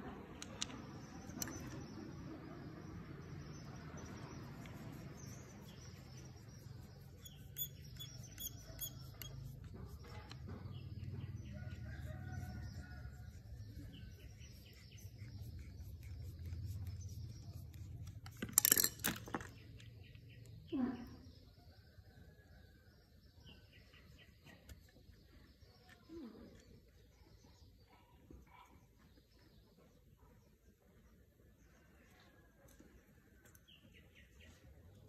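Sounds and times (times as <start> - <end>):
birds chirping: 0.4 - 18.2.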